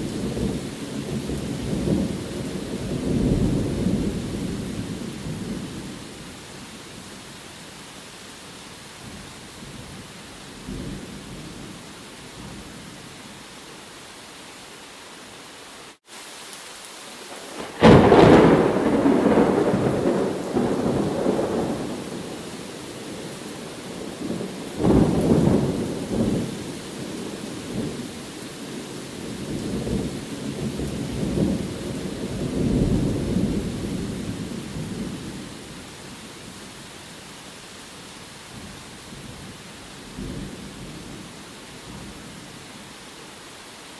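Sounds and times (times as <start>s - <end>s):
steady rain: 0.0s - 43.9s
thunder clap and rumble: 17.5s - 22.4s, 29.4s - 35.2s.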